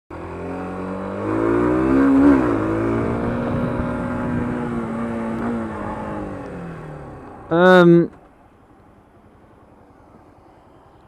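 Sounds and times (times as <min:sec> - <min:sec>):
motorcycle engine accelerating: 0:00.1 - 0:07.9
wind noise on microphone: 0:01.8 - 0:06.3.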